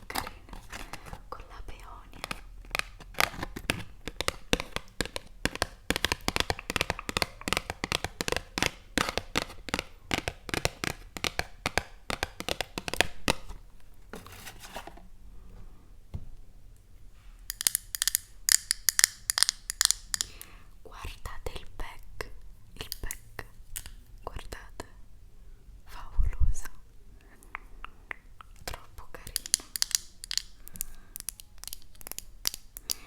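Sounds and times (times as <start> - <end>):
rapid tapping on objects: 2.2 - 13.6, 29.3 - 33.0
soft rustle: 13.5 - 15.9.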